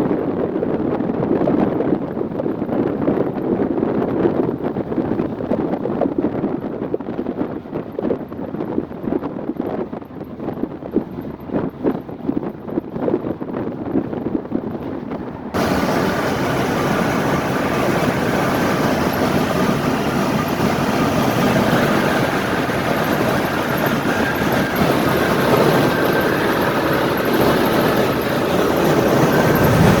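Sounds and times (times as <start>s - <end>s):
wind and road noise: 0.0s - 30.0s
car engine running: 14.8s - 30.0s.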